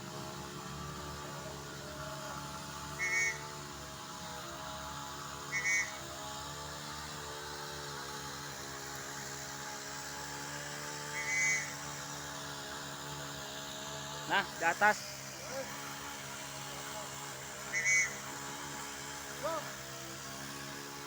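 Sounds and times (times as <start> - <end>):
steady motor hum: 0.0 - 21.0.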